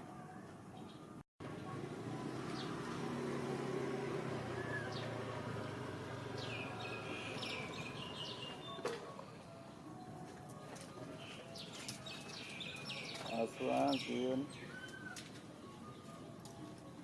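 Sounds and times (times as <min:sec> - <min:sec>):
low engine-like hum: 0:00.1 - 0:11.1
birds chirping: 0:04.3 - 0:17.0.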